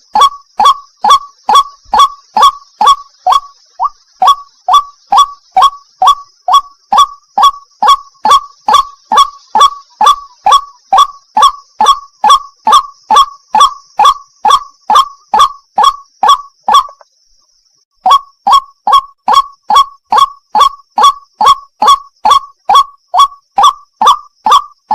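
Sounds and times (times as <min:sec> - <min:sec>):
waterhen calling: 0:00.0 - 0:17.1, 0:18.0 - 0:24.9
steady high hiss: 0:00.0 - 0:17.9.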